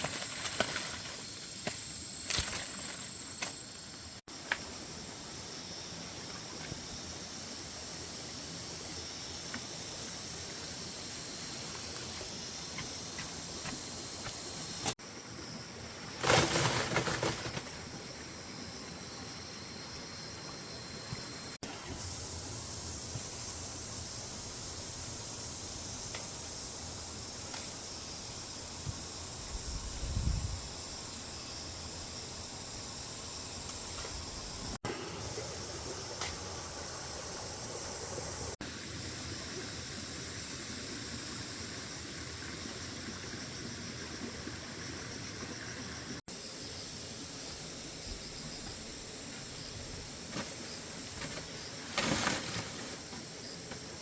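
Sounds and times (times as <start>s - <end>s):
high-pitched outdoor hiss: 0.0s - 54.0s
high-pitched hiss: 19.2s - 42.0s.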